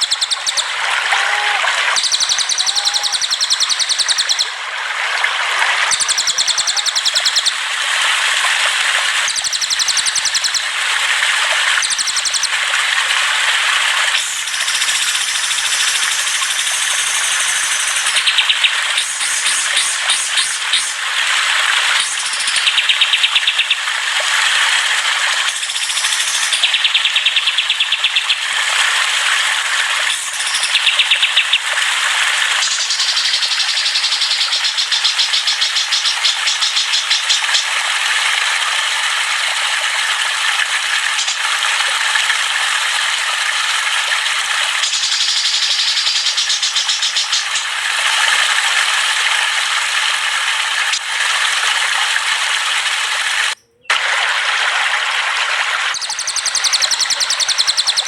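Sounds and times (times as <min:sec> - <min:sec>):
songbirds singing and trilling: 0:00.0 - 0:00.8, 0:01.9 - 0:04.6, 0:05.8 - 0:07.6, 0:09.2 - 0:10.7, 0:11.8 - 0:12.6, 0:14.2 - 0:21.0, 0:21.9 - 0:23.9, 0:25.5 - 0:28.5, 0:30.1 - 0:31.8, 0:32.6 - 0:37.7, 0:41.1 - 0:41.5, 0:44.7 - 0:47.8, 0:53.5 - 0:54.0, 0:55.9 - 0:58.0.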